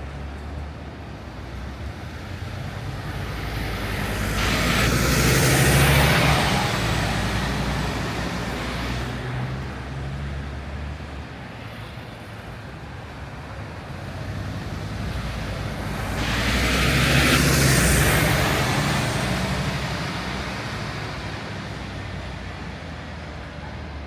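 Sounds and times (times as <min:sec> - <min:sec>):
bus passing: 0:00.0 - 0:24.0
low traffic hum: 0:00.0 - 0:24.0
vehicle approaching: 0:01.5 - 0:11.1, 0:13.9 - 0:24.0.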